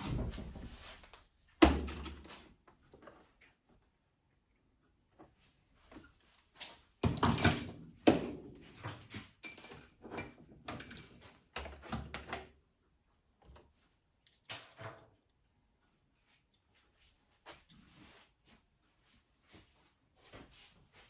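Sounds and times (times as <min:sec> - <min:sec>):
light metallic jingle: 0:09.4 - 0:10.0, 0:10.7 - 0:11.5.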